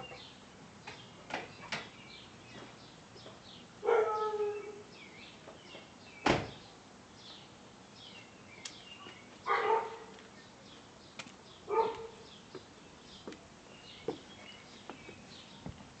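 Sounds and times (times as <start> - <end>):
small birds chirping: 0.0 - 16.0
dog barking: 3.8 - 4.6, 9.5 - 10.1, 11.7 - 12.2.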